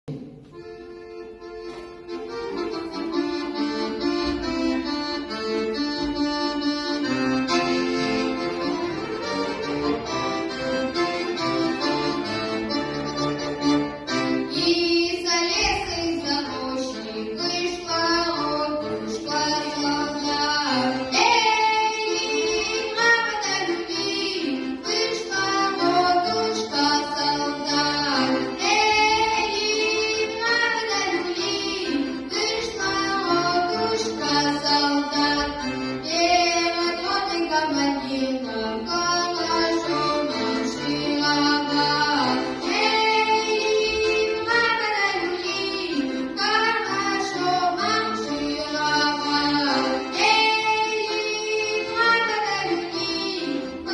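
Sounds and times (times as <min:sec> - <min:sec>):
instrumental accompaniment: 0:00.0 - 0:53.9
child singing folk song: 0:14.4 - 0:53.9.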